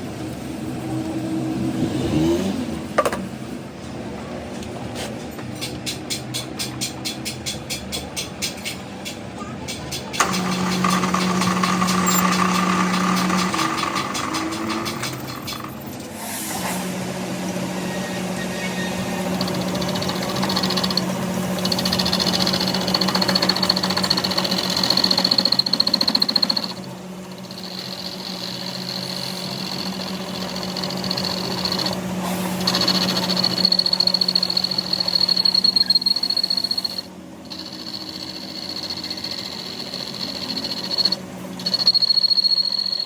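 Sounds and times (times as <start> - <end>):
machine humming: 10.1 - 15.8, 16.9 - 43.0.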